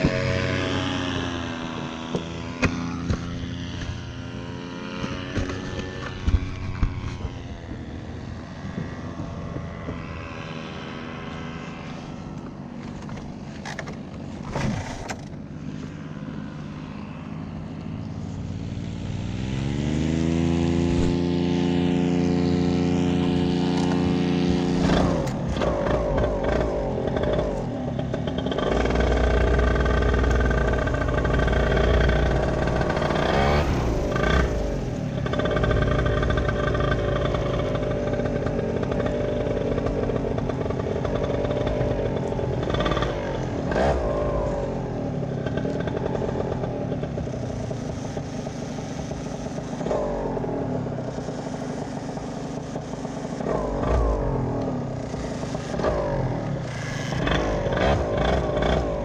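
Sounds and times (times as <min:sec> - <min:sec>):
vehicle engine revving: 0:00.0 - 0:59.0.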